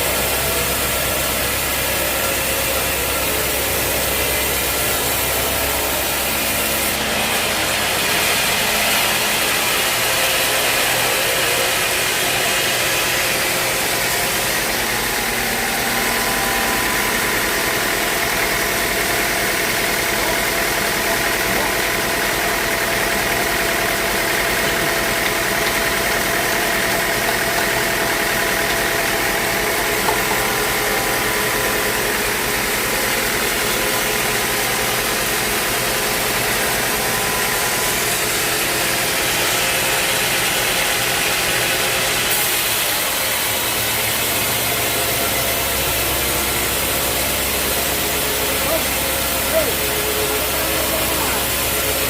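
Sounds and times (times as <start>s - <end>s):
sawmill machine noise: 0.0s - 52.0s.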